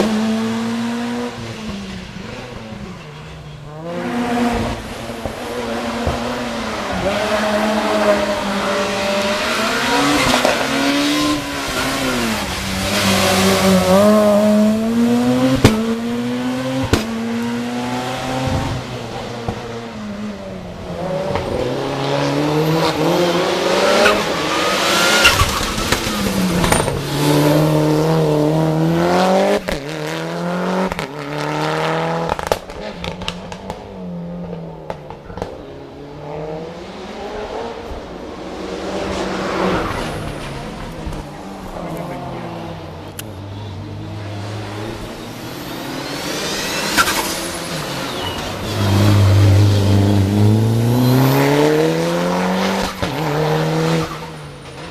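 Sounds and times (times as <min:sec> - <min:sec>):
racing car engine revving: 0:00.0 - 0:54.9
exhaust crackles and pops: 0:32.2 - 0:35.6.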